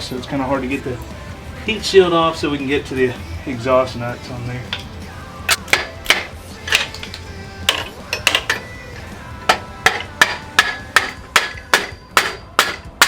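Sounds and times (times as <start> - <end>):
hammer striking metal exhaust: 9.5 - 13.0.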